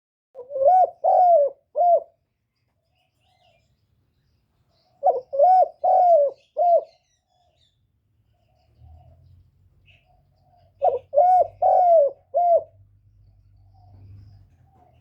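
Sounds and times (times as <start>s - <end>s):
dove cooing: 0.4s - 2.2s, 5.0s - 7.1s, 9.9s - 12.8s.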